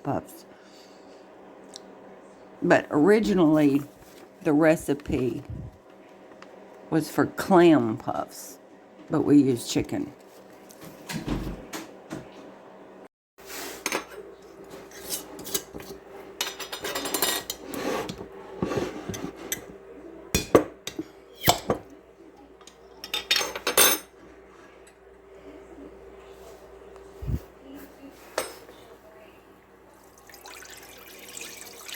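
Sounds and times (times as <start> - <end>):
pots and pans clanking: 14.8 - 19.8.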